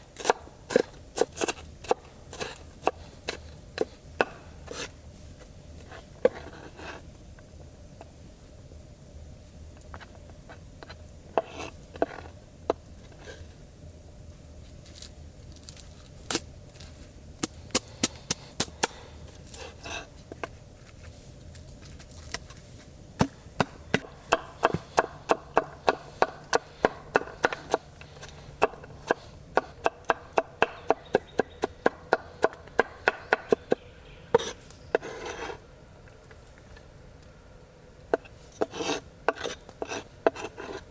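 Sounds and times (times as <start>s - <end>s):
knife chopping on wooden board: 23.2s - 27.9s, 28.6s - 33.8s.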